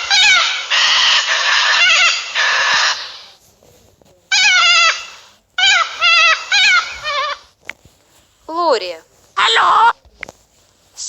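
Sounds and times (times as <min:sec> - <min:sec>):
cockatoo screeching: 0:00.0 - 0:03.4, 0:04.3 - 0:07.5, 0:09.4 - 0:10.0.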